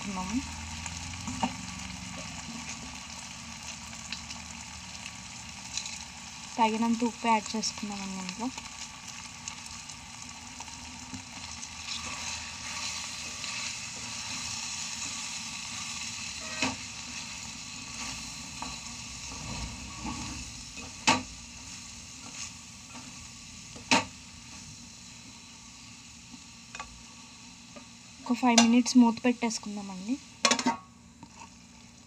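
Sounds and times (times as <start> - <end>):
chicken sizzling in a pot: 0.0 - 32.0.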